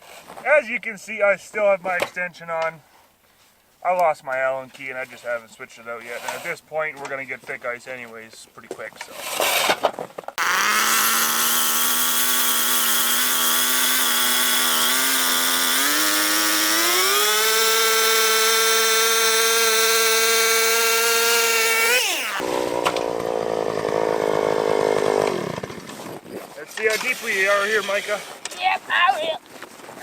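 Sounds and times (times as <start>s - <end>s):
power ice auger drilling: 10.4s - 26.1s.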